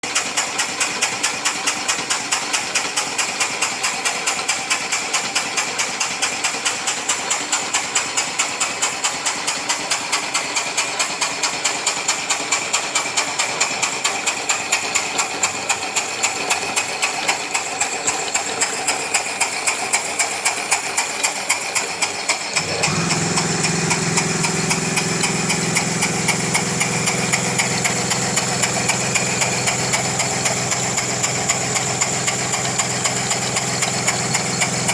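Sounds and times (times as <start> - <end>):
model steam engine puffing: 22.5 - 34.9.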